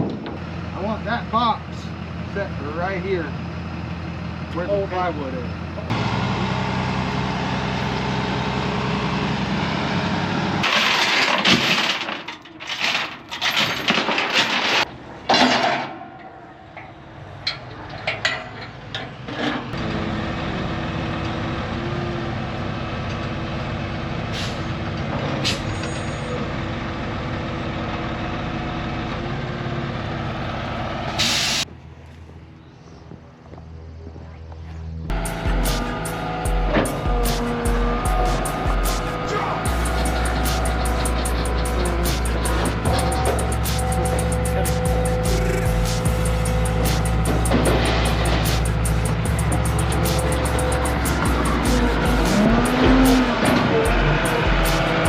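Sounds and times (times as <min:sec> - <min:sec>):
diesel truck engine running: 0:00.0 - 0:13.4, 0:16.3 - 0:55.0
air brake hissing: 0:24.3 - 0:24.7, 0:25.4 - 0:26.3, 0:31.2 - 0:31.6
knocking clanks: 0:39.6 - 0:55.0.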